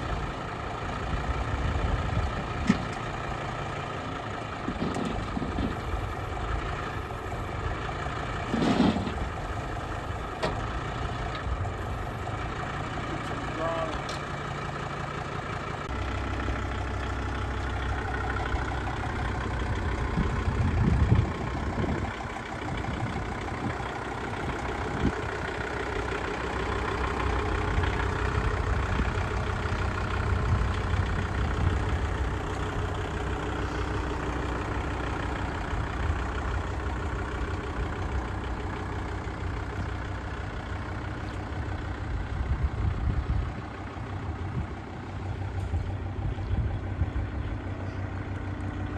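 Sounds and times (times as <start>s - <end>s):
tractor diesel engine idling: 0.0s - 48.9s.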